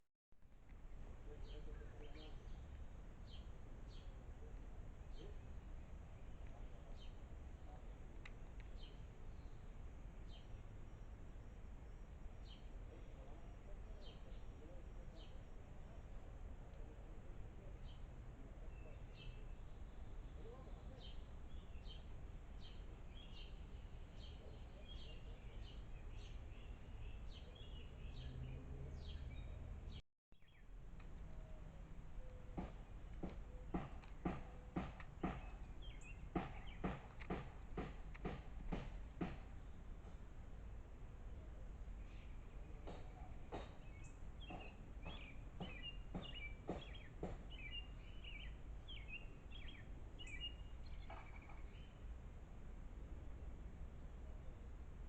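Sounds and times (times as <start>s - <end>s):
bird chirping: 1.2s - 4.3s, 5.0s - 11.0s, 16.8s - 40.2s, 41.4s - 52.2s
small bird chirping: 42.0s - 52.0s.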